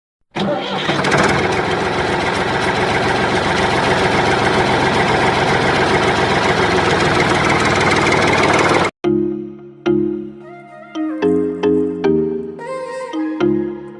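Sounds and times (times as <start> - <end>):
engine idling: 0.4 - 8.9.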